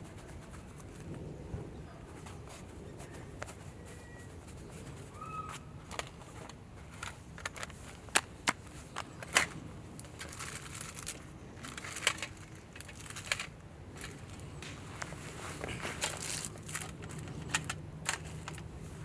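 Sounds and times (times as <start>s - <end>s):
dry wood crackling and snapping: 4.8s - 19.0s.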